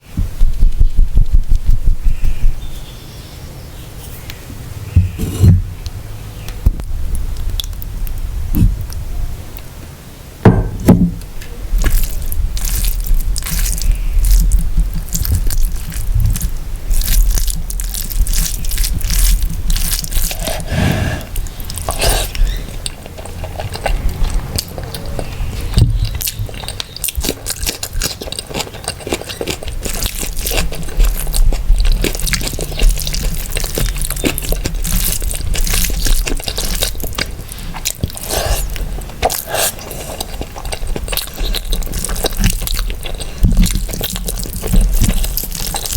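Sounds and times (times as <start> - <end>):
wet chewing and biting: 11.8 - 45.9
sharp clicks and crunches: 21.4 - 45.9.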